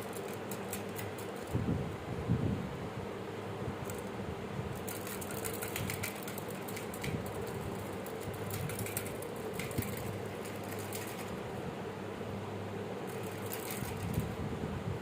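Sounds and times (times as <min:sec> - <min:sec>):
light clicks and scratches: 0:00.0 - 0:01.6, 0:03.8 - 0:04.1, 0:04.8 - 0:11.5, 0:13.1 - 0:14.4
mechanical hum: 0:00.0 - 0:15.0.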